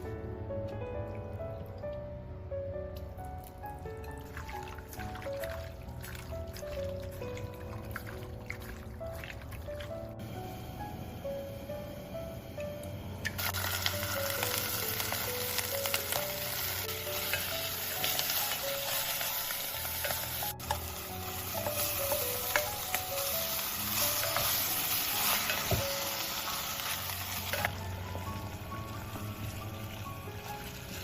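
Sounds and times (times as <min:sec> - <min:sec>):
food sizzling in a pan: 0:13.3 - 0:31.0.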